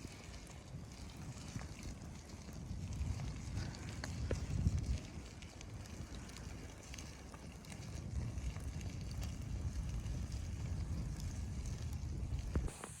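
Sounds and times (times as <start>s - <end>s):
wind buffeting microphone: 0.0s - 13.0s
faint ticks: 3.5s - 7.8s.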